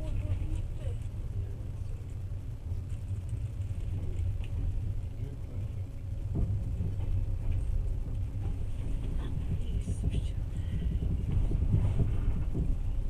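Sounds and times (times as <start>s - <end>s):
train carriage rumbling: 0.0s - 13.0s
knock: 9.7s - 12.9s.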